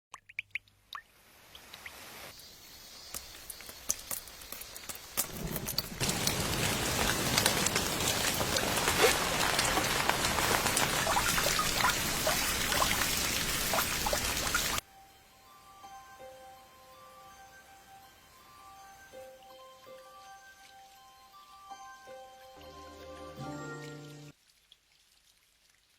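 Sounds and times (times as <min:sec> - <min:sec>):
rain falling: 0:03.1 - 0:14.8, 0:22.6 - 0:25.9.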